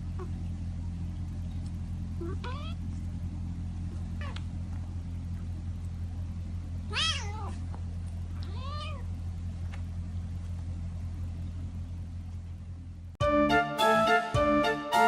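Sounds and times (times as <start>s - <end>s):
steady low hum: 0.0s - 15.0s
cat meowing: 2.2s - 2.8s, 6.9s - 7.6s, 8.4s - 9.1s.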